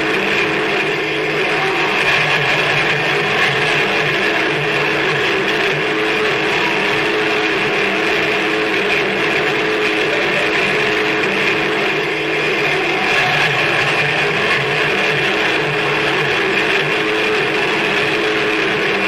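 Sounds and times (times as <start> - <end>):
harsh noise music: 0.0 - 19.0.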